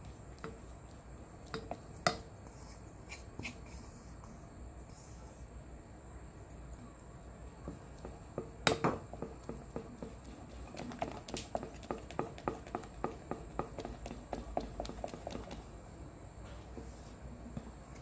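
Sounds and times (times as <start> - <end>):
utensil stirring thick soap: 7.8 - 15.8.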